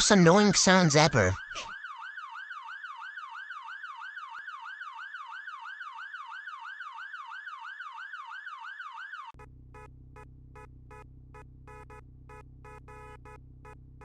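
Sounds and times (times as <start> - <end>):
electronic siren yelping: 0.1 - 9.9.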